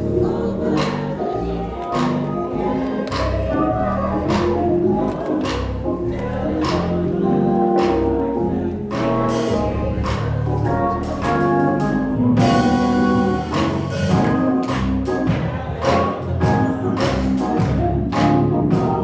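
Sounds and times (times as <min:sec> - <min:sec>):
organ chords: 0:00.0 - 0:19.0
steady drum beat: 0:03.1 - 0:07.2, 0:08.9 - 0:19.0.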